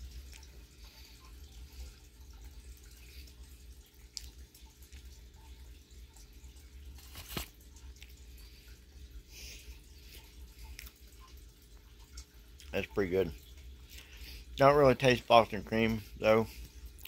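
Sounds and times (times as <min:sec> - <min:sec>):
person chewing wetly: 0:00.0 - 0:05.5, 0:06.8 - 0:12.7, 0:13.7 - 0:14.4.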